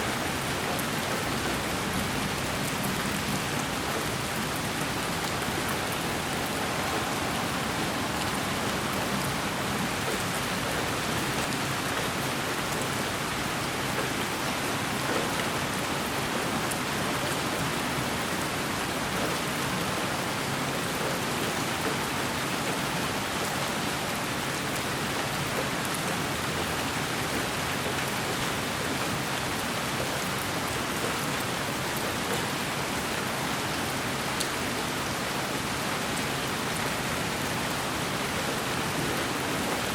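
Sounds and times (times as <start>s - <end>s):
steady white noise hiss: 0.0s - 12.6s.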